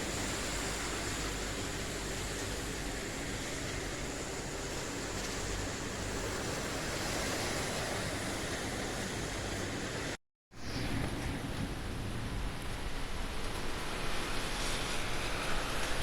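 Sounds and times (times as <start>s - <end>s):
steady rain falling: 11.0s - 16.0s.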